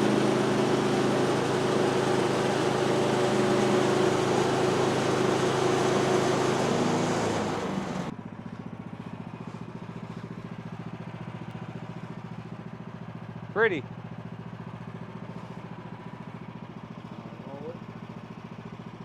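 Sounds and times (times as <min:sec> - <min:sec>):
band saw cutting log: 0:00.0 - 0:08.1
sawmill engine running: 0:00.0 - 0:18.6.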